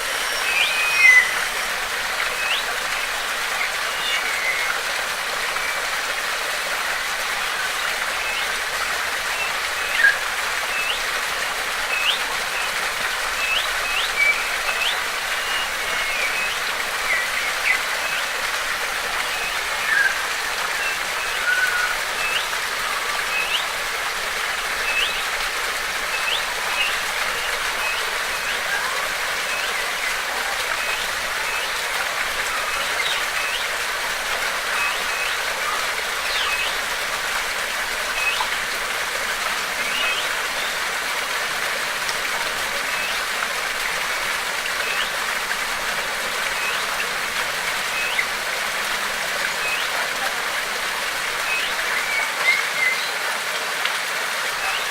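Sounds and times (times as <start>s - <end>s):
running water: 0.0s - 54.9s.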